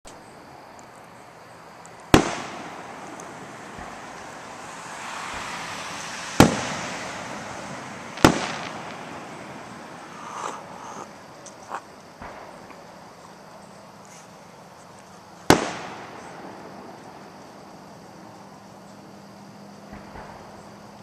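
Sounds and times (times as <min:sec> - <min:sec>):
fireworks bangs with echo: 0:02.1 - 0:10.8, 0:12.2 - 0:13.1, 0:15.4 - 0:17.9, 0:19.8 - 0:20.8.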